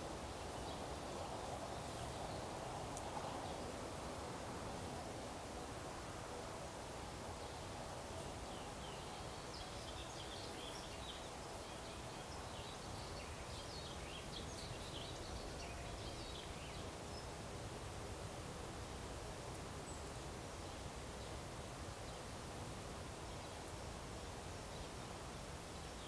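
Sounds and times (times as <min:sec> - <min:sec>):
background hiss and hum: 0:00.0 - 0:26.0
small birds twittering: 0:07.4 - 0:17.4.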